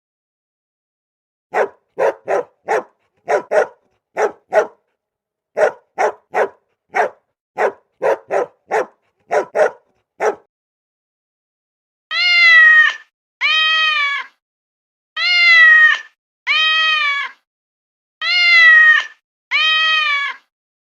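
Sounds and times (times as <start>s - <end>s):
dog barking: 1.5s - 4.8s, 5.6s - 10.5s.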